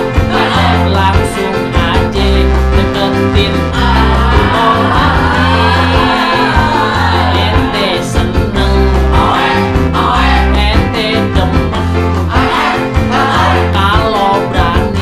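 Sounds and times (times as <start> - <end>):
band playing: 0.0 - 15.0
person singing: 0.0 - 15.0.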